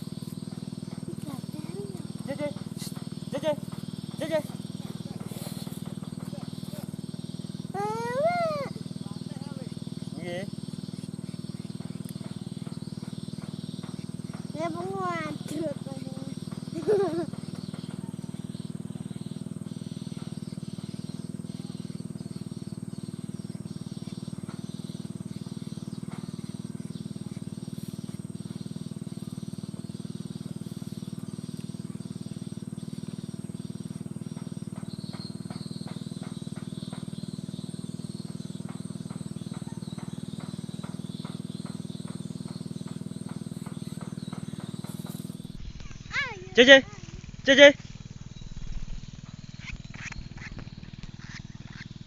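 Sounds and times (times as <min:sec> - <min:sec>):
bird chick begging: 0:00.0 - 0:33.2, 0:38.0 - 0:52.0.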